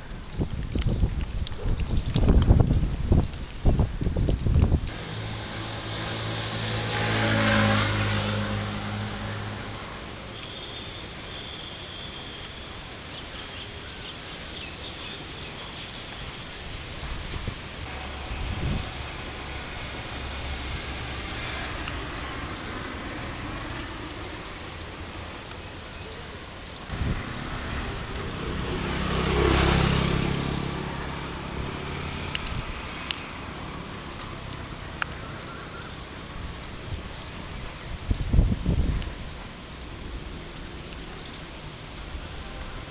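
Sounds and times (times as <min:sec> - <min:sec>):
outdoor background hiss: 0:02.3 - 0:42.9
vehicle passing on wet road: 0:04.9 - 0:11.6, 0:16.2 - 0:25.8, 0:26.5 - 0:38.9
faint high whistle: 0:10.3 - 0:12.8.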